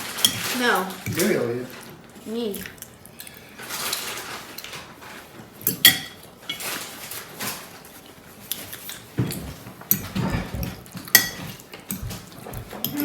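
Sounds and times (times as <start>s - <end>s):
cutlery scraping and clinking on dishes: 0.0s - 1.4s, 3.2s - 7.8s, 8.5s - 13.0s.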